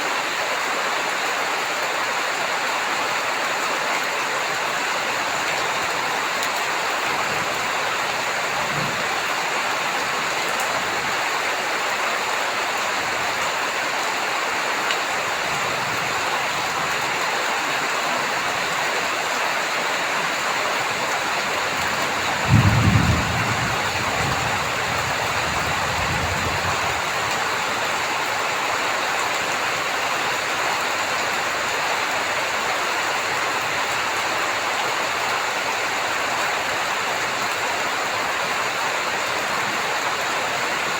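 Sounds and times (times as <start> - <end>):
heavy rain falling: 0.0 - 40.9
thunder rumbling: 21.8 - 27.2.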